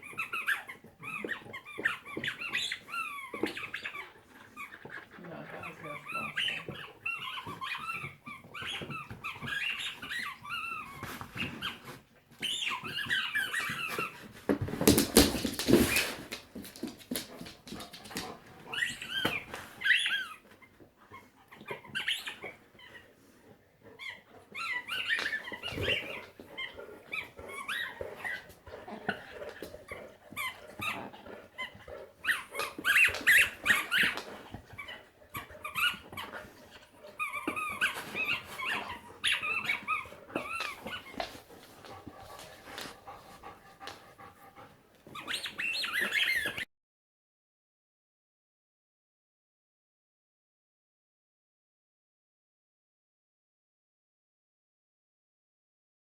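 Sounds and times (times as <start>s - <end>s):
squeaky toy squeaks: 0.0s - 4.8s, 5.6s - 11.8s, 12.4s - 14.2s, 18.7s - 20.4s, 21.6s - 22.5s, 24.0s - 26.3s, 27.1s - 28.5s, 30.3s - 36.3s, 37.1s - 41.2s, 45.1s - 46.6s.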